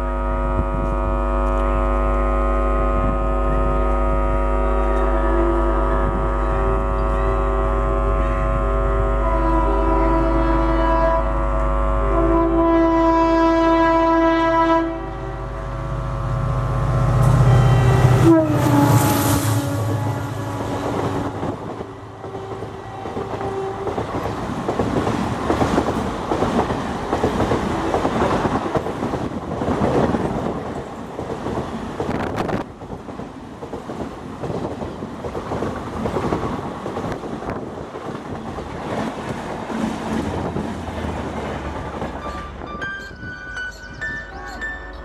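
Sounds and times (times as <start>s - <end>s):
train horn: 0.0s - 30.5s.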